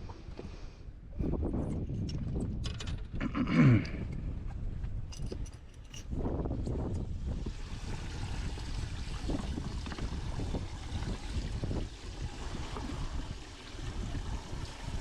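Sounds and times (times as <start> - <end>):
wind buffeting microphone: 1.0 - 15.0
choppy water washing: 7.2 - 15.0.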